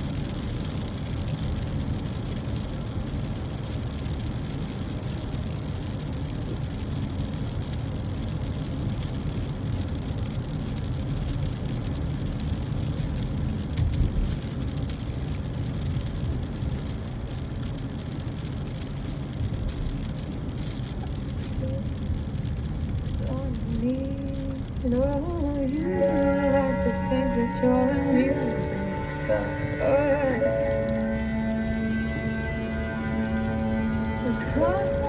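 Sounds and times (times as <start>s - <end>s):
car road and engine rumble: 0.0s - 35.0s
faint ticks: 12.4s - 32.5s.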